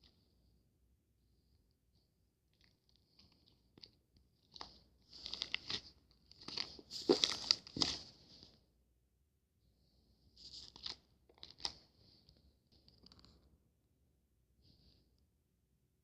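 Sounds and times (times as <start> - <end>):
close-up crunching and crinkling: 2.5 - 8.4, 10.4 - 11.9.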